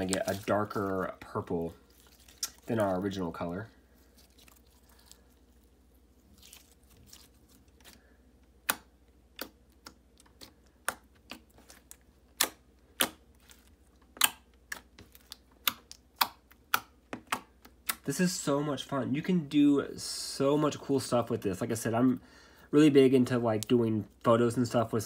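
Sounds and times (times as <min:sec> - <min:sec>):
slime kneaded by hand: 0:00.0 - 0:18.0.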